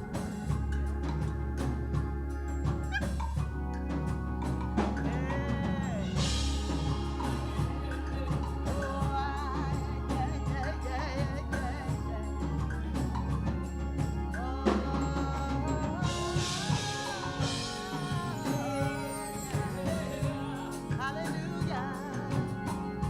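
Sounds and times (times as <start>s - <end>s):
drum kit: 0.0s - 23.0s
pitched melody lines: 0.0s - 23.0s
singing: 4.7s - 23.0s.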